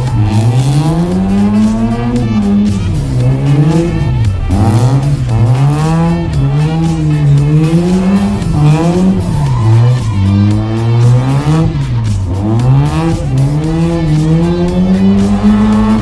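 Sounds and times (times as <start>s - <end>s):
rotary engine revving: 0.0s - 16.0s
tyres squealing: 0.0s - 16.0s.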